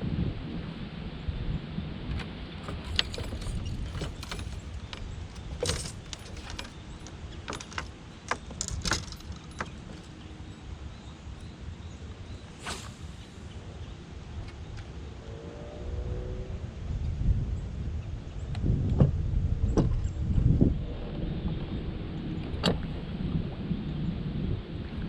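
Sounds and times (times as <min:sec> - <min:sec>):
wind rumble on microphone: 0:00.0 - 0:25.0
sharp clicks and light rattles: 0:02.6 - 0:10.3.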